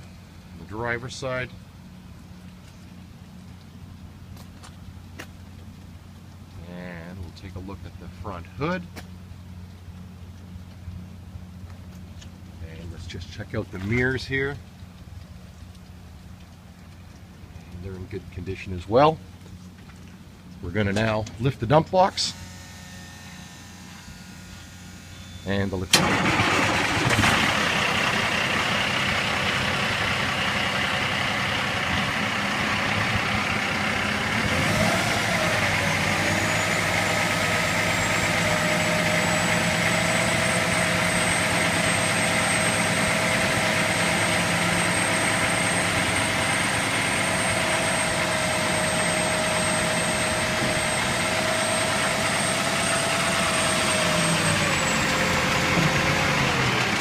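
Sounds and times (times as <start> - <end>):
diesel truck engine idling: 25.9 - 57.0
hydraulic hoist whine: 31.4 - 57.0.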